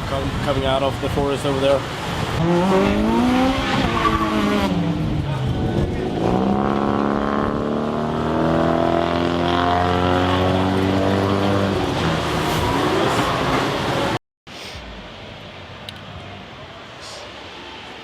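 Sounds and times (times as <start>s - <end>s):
car engine revving: 2.3s - 14.2s.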